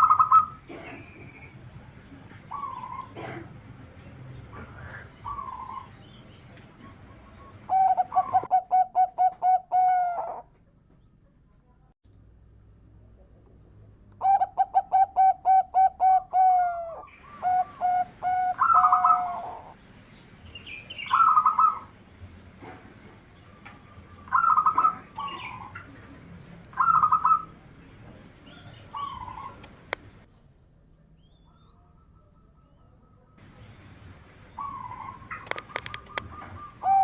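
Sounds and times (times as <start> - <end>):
dove cooing: 0.0 - 1.3, 2.3 - 3.6, 4.5 - 6.0, 6.7 - 10.5, 14.2 - 19.8, 21.1 - 21.9, 23.6 - 26.0, 26.7 - 27.6, 28.4 - 29.9, 34.5 - 37.0.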